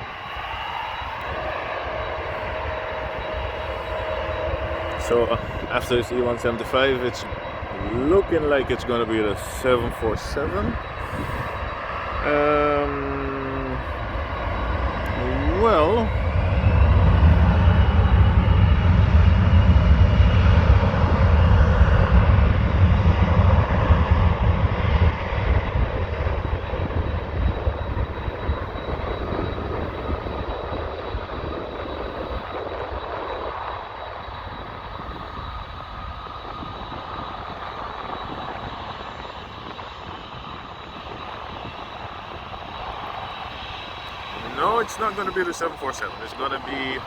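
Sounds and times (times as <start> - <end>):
jet engines at takeoff: 0.0 - 47.0.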